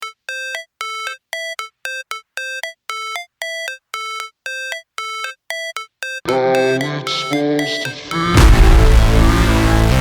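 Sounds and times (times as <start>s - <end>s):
synthesizer riff: 6.2s - 10.0s.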